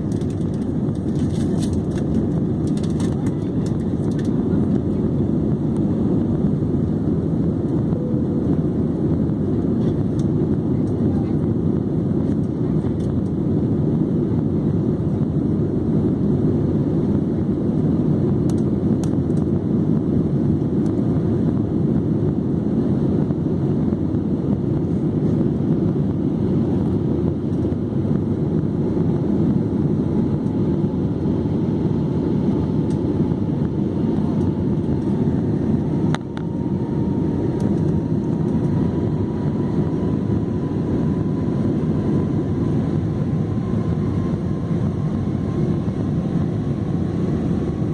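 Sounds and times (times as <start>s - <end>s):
airliner cabin noise: 0.0s - 47.9s
faint rising whine: 5.2s - 10.7s.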